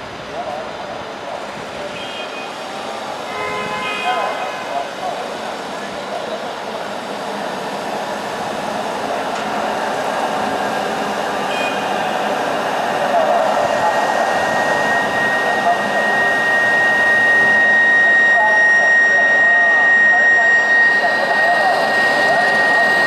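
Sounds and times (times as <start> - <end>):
electric train rushing hum: 0.0 - 23.0
thin high whine: 14.1 - 23.0.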